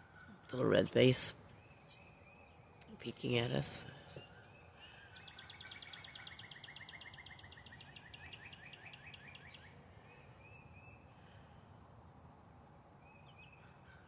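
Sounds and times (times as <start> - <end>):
faint bird chirps: 0.0 - 11.8
songbird trilling: 0.2 - 11.1.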